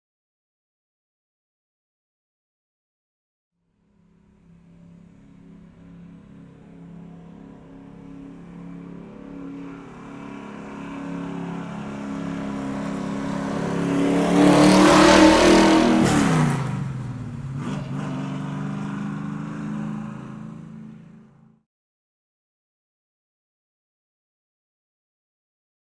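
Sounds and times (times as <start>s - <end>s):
car engine driving past: 3.8s - 21.6s.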